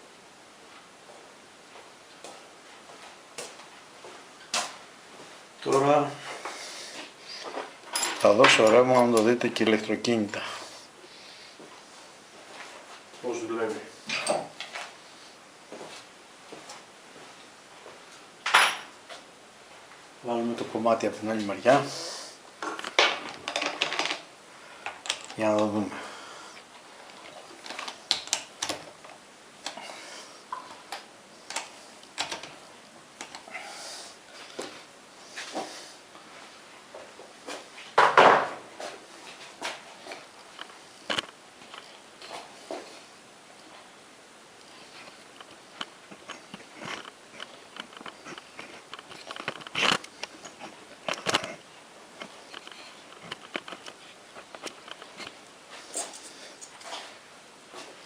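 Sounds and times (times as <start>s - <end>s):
metal parts clicking and knocking: 22.8s - 24.2s.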